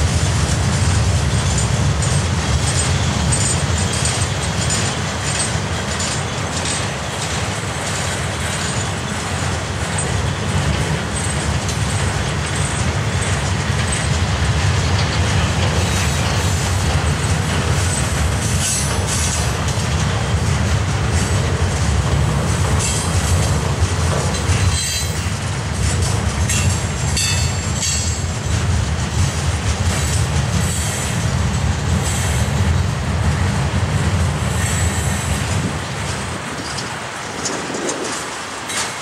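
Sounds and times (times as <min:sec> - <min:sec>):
steel wheels rumbling on rail: 0:00.0 - 0:39.0
wheel squeal and clatter: 0:01.4 - 0:14.2, 0:14.8 - 0:19.8, 0:24.1 - 0:28.3, 0:36.4 - 0:39.0.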